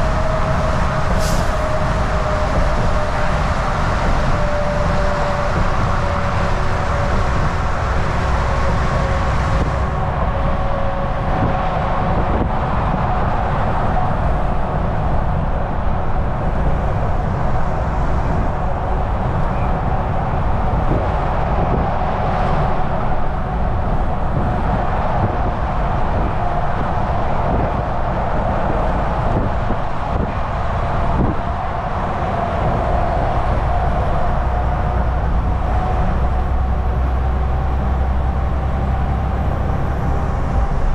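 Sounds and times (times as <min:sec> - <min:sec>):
held whine: 0:00.0 - 0:12.6
truck engine drone: 0:00.0 - 0:40.9
tyre road noise: 0:00.0 - 0:40.9.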